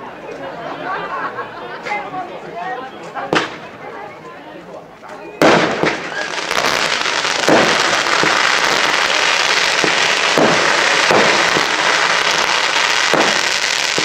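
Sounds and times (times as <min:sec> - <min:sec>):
loud firework bangs: 0:03.3 - 0:03.7, 0:05.4 - 0:14.0
firework crackle: 0:05.4 - 0:14.0.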